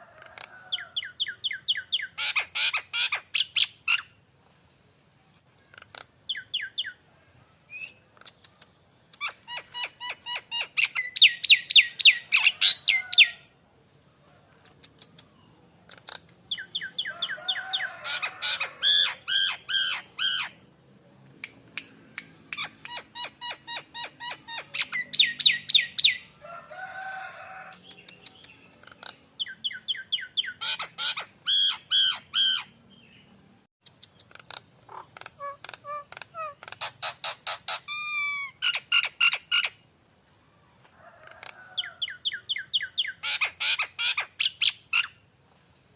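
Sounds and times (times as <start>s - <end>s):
myna calling: 15.9s - 20.6s.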